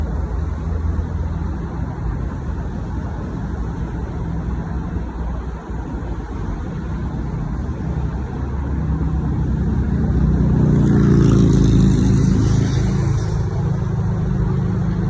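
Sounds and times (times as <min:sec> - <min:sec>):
electric train rumble and hum: 0:00.0 - 0:15.0.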